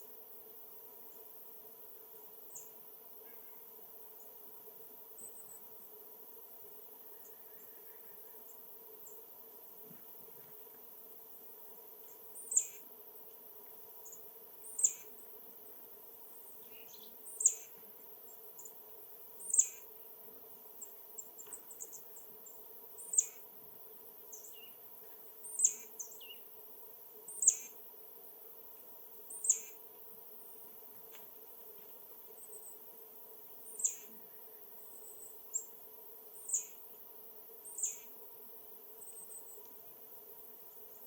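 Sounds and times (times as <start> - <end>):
small bird sharp calls: 12.4 - 12.9, 14.0 - 15.2, 16.7 - 17.8, 19.4 - 19.9, 23.0 - 23.4, 25.4 - 26.4, 27.3 - 27.8, 29.3 - 29.8, 33.7 - 34.3, 36.4 - 36.8, 37.6 - 38.2.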